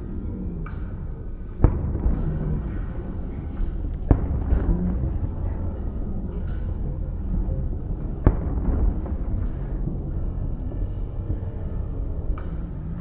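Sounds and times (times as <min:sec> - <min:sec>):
fireworks booming: 0:01.5 - 0:13.0
firework sharp crack: 0:01.6 - 0:02.9, 0:04.0 - 0:05.0, 0:08.2 - 0:09.9.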